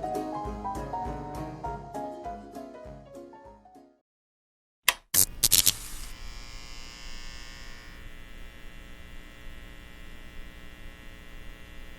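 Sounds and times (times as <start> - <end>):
electrical buzz with hum: 5.2 - 11.9.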